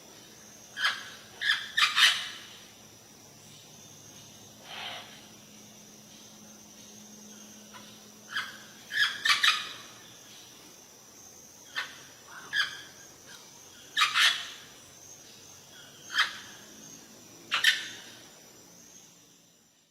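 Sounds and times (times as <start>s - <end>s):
bird calling: 0.8s - 2.7s, 7.6s - 10.1s, 11.6s - 14.8s.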